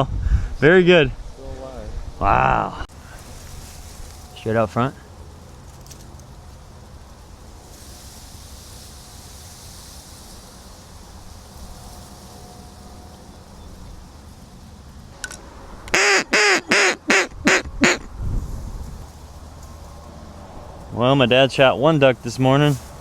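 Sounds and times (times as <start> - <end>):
duck quacking: 15.9 - 18.1.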